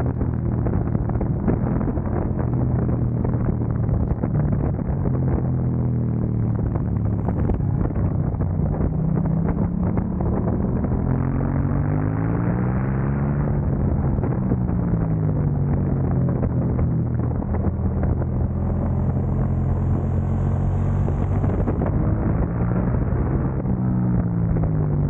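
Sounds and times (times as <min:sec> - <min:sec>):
motorcycle engine: 0:06.2 - 0:25.0.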